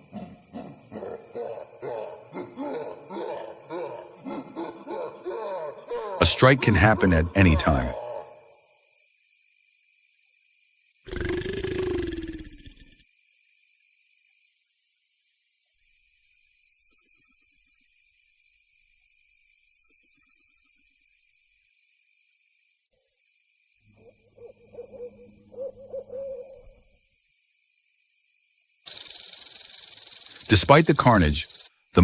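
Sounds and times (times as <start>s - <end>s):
low wavering animal call: 24.3s - 26.8s.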